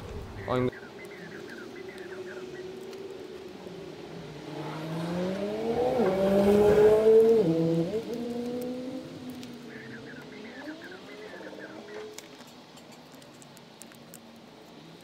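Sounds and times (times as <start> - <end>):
vehicle engine accelerating past: 3.6 - 12.1.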